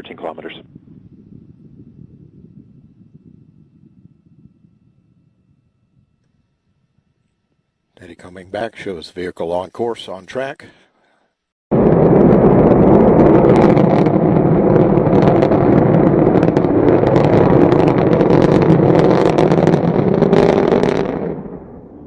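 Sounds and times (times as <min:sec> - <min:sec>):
rocket engine roaring: 0:11.7 - 0:22.0.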